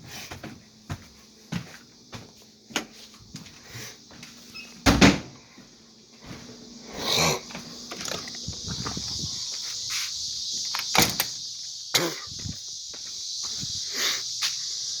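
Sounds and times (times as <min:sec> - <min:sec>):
steady high hiss: 0:05.8 - 0:15.0.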